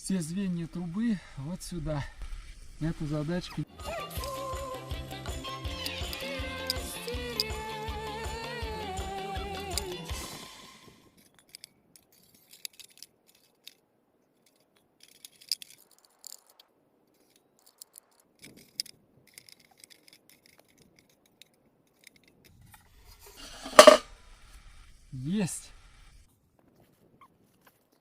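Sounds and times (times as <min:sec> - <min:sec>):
metal clank-scrape: 0:23.2 - 0:24.1
metal stovepipe clicks and scrapes: 0:23.3 - 0:24.0.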